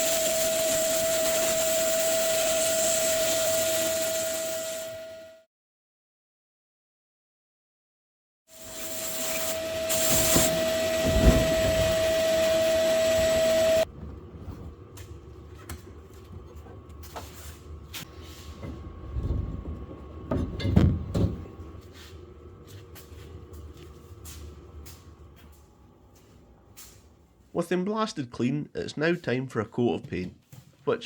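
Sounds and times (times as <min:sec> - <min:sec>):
sandblaster hissing and whistling: 0:00.0 - 0:05.4, 0:08.5 - 0:13.9
thumps: 0:10.0 - 0:12.5.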